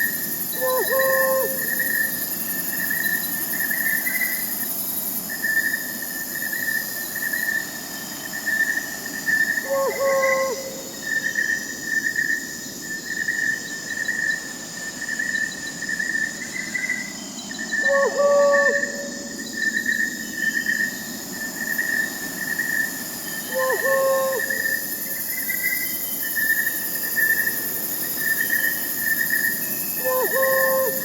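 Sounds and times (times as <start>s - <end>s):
crickets chirping: 0.0s - 31.0s
high insect hiss: 0.0s - 31.0s
owl hooting: 0.6s - 2.0s, 9.6s - 11.0s, 17.8s - 19.4s, 23.4s - 24.8s, 30.0s - 31.0s.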